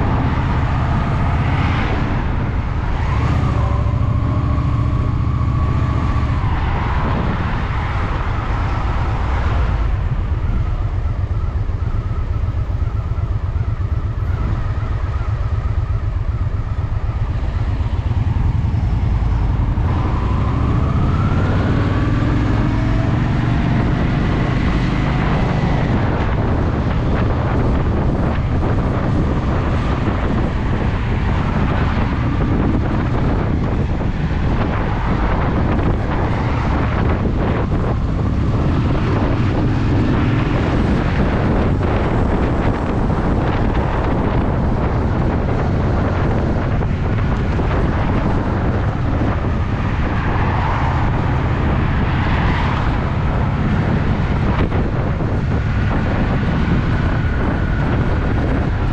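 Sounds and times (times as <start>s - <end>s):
motorcycle engine revving: 8.0s - 50.2s.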